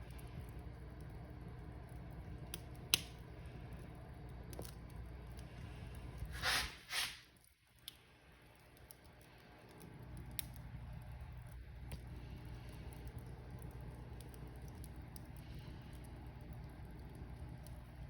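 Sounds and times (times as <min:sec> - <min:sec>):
wood fire crackling: 0:00.0 - 0:18.0
hissing bursts from fire: 0:05.6 - 0:07.3.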